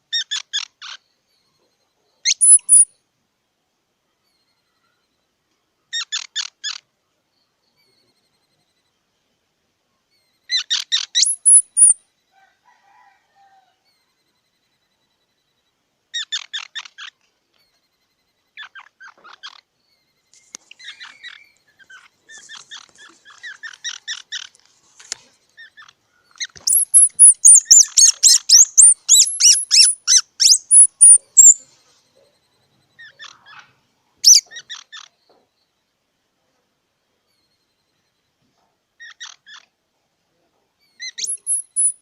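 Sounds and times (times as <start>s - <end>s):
squirrel chirping: 2.2s - 3.0s, 10.5s - 12.0s, 25.6s - 31.7s, 34.2s - 35.0s, 41.0s - 42.0s.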